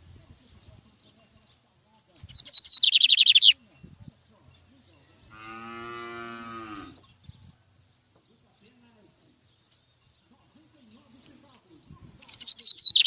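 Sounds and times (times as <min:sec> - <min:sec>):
songbird whistling and trilling: 0:02.1 - 0:03.6, 0:11.3 - 0:13.0
cow mooing: 0:05.3 - 0:07.0.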